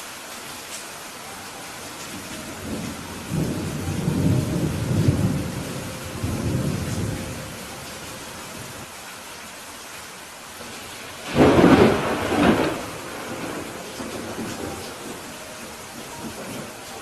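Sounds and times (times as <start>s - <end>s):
rain hiss: 0.0s - 17.0s
thunder rumbling: 1.8s - 8.9s, 10.8s - 17.0s.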